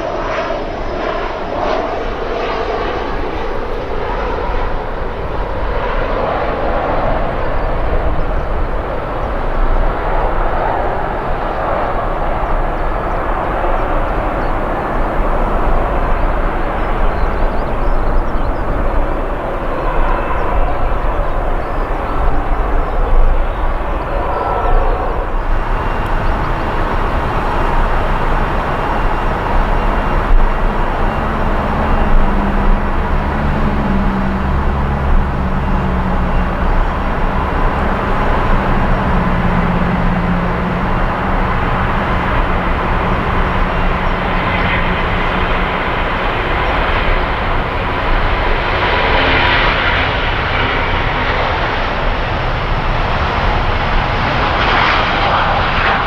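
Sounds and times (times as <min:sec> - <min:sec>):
airliner engines rumbling: 0:00.0 - 0:56.0
high-pitched engine roar: 0:00.1 - 0:56.0.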